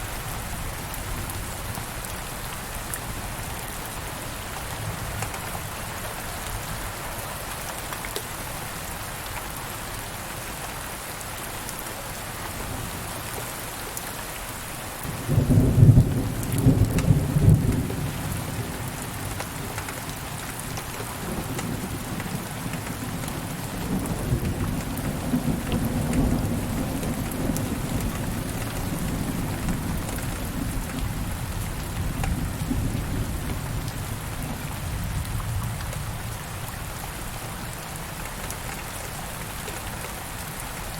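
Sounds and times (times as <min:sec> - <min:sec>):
steady rain falling: 0:00.0 - 0:40.9
thunder crack and rumble: 0:15.1 - 0:20.2, 0:21.1 - 0:36.3.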